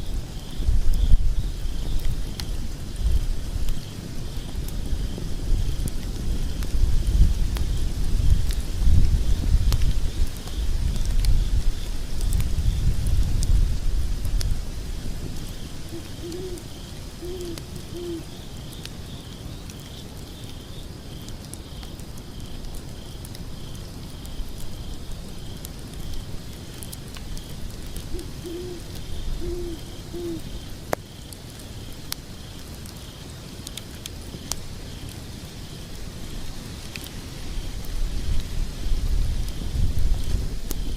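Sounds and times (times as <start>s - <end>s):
cricket chirping: 0.0s - 12.9s, 15.4s - 40.9s
log fire crackling: 0.0s - 40.9s
owl hooting: 15.9s - 18.3s, 28.1s - 30.5s.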